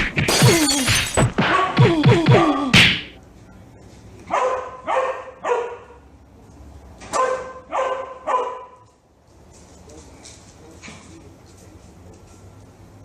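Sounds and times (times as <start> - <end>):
dog barking: 4.3 - 6.0, 7.1 - 8.8.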